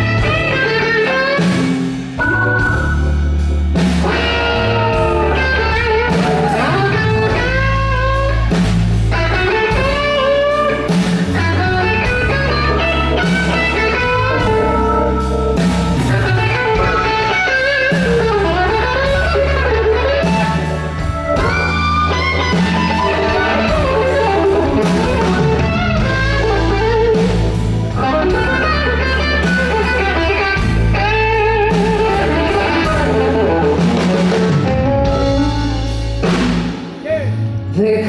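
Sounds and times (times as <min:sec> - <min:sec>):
drum kit: 0:00.0 - 0:37.4
bass guitar: 0:00.0 - 0:38.0
electric guitar lead: 0:00.0 - 0:38.0.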